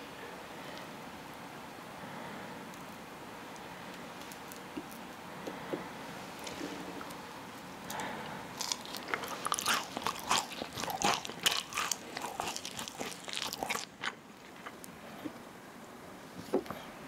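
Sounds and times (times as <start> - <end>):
crisp crunching of pastry: 8.6 - 15.0.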